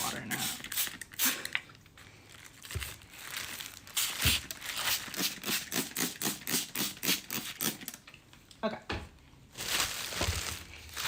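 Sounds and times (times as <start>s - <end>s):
spray bottle squirting: 0.3s - 1.5s, 4.0s - 8.0s.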